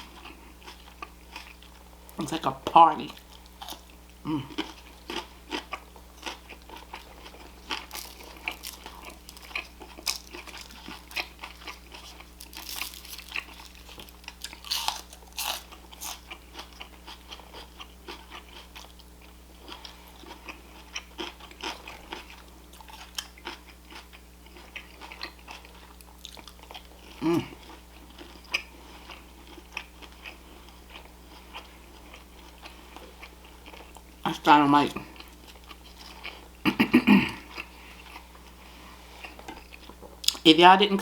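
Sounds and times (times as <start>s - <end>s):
steady low hum: 0.0s - 41.0s
person biting and chewing food: 3.2s - 34.2s.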